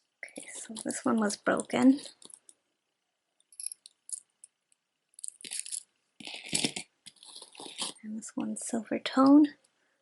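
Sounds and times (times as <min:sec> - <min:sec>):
metal jewelry clinking and jingling: 0:03.5 - 0:04.3.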